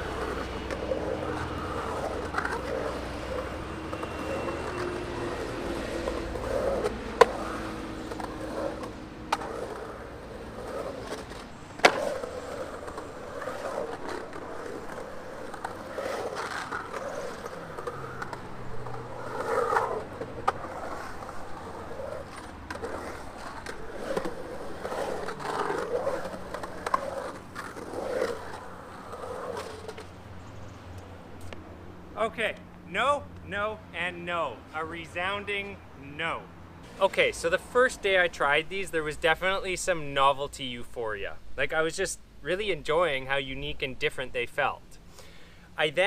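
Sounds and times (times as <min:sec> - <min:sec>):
skateboard clacks: 0:00.0 - 0:30.2
skateboard wheels rolling on concrete: 0:00.0 - 0:46.0.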